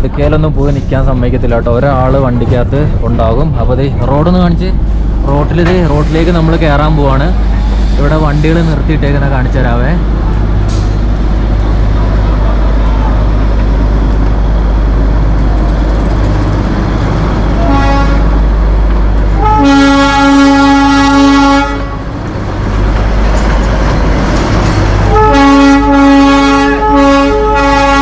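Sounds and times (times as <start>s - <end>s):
rumble of moving train: 0.0s - 28.0s
train whistle: 17.6s - 18.4s, 19.4s - 22.1s, 25.1s - 28.0s.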